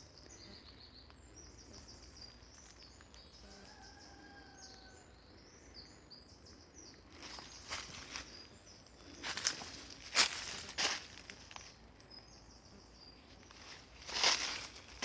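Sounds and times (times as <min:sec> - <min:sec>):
small birds chirping: 0:00.0 - 0:15.0
footsteps crunching on forest floor: 0:02.2 - 0:04.3, 0:07.1 - 0:11.9, 0:13.3 - 0:15.0.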